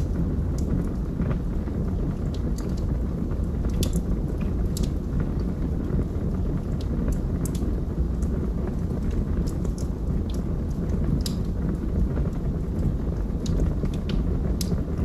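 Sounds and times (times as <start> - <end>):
burning logs crackling and popping: 0.0 - 15.0
low rumble of flames: 0.0 - 15.0.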